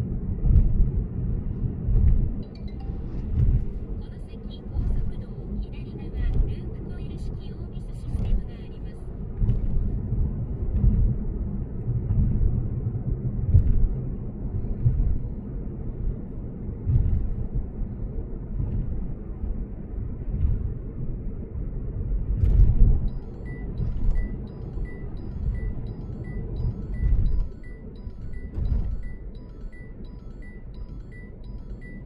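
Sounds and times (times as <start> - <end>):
car road rumble: 0.0 - 32.0
high beep: 23.0 - 32.0.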